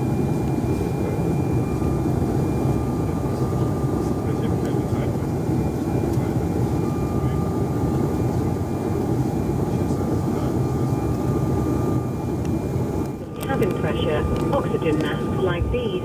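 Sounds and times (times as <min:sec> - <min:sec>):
jet cabin rumble: 0:00.0 - 0:16.0.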